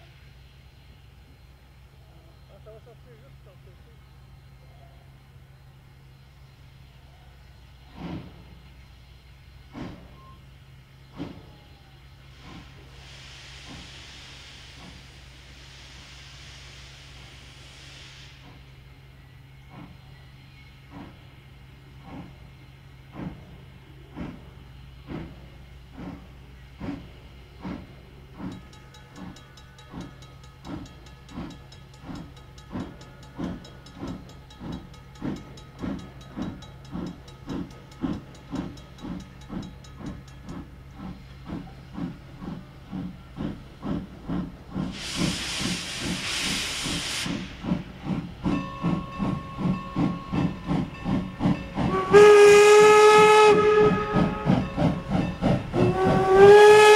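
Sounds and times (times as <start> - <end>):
steam locomotive chuffing: 0.0 - 56.9
steam hissing: 7.7 - 56.9
train whistle toot: 51.8 - 56.9.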